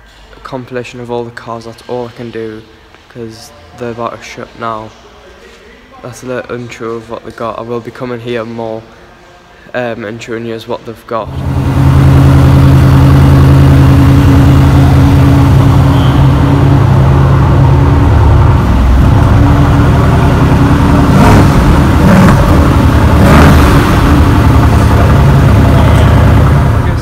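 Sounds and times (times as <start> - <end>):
car engine running loud: 11.2 - 27.0
exhaust cracks: 11.2 - 27.0.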